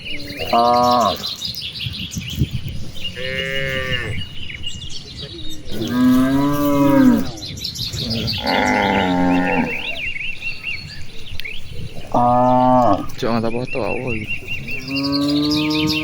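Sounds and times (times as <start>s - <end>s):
birds chirping: 0.0s - 16.0s
cattle mooing: 0.2s - 1.3s, 3.1s - 4.3s, 5.7s - 7.4s, 8.0s - 10.0s, 12.0s - 13.2s, 14.7s - 16.0s.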